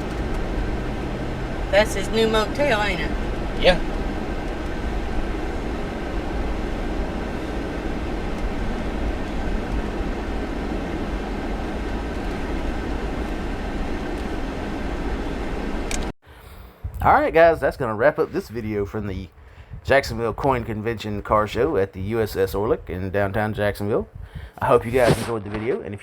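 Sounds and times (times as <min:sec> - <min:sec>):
car interior road noise: 0:00.0 - 0:16.1.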